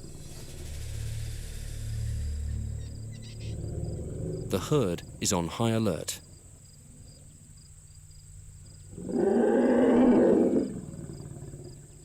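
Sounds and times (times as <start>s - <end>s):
crickets chirping: 0.0s - 12.0s
lion roaring: 8.9s - 11.9s.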